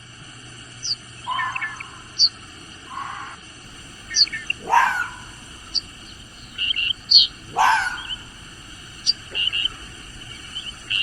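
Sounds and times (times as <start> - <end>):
high bird chirps: 0.8 - 11.0
loud rising animal calls: 1.2 - 11.0.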